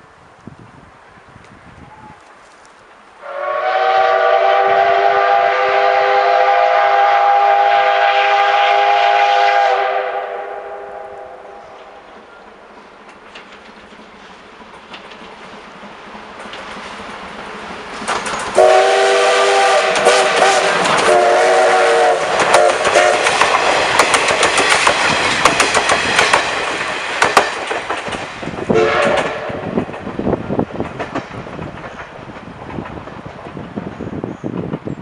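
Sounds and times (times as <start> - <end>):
steam locomotive whistle blasts: 3.2 - 12.0, 18.6 - 23.4, 28.7 - 29.8
steam locomotive exhaust: 3.2 - 35.0
train wheel clatter: 11.6 - 35.0.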